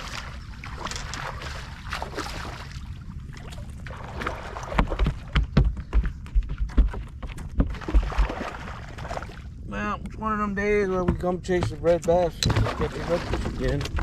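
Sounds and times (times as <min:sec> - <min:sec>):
heavy thumps on a boat: 0:04.5 - 0:08.7, 0:10.9 - 0:14.0.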